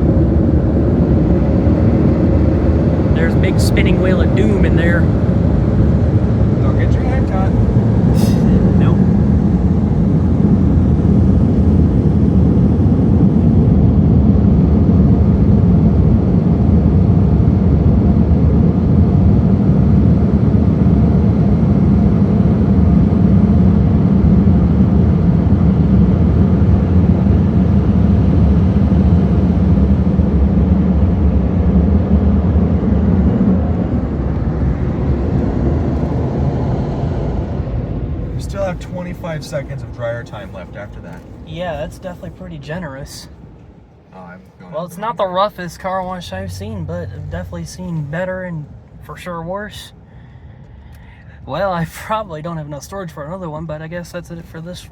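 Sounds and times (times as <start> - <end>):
air dryer blowers rushing: 0.0 - 14.2
low hum: 0.0 - 51.4.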